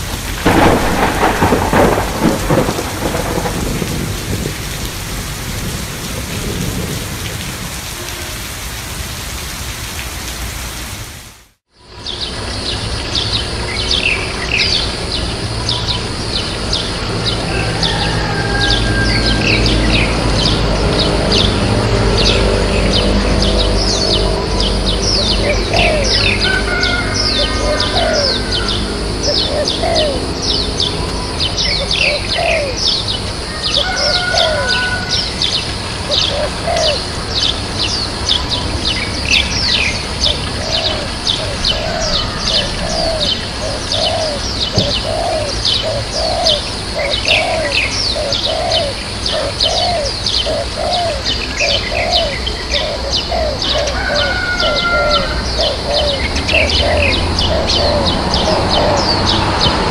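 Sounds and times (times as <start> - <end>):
lower bird call: 22.2 - 38.6, 39.2 - 59.9
small birds chirping: 35.1 - 59.9.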